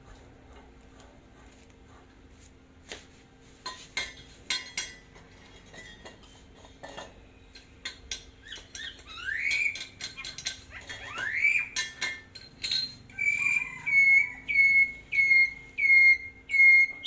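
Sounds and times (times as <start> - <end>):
metal parts clinking: 6.8 - 13.1.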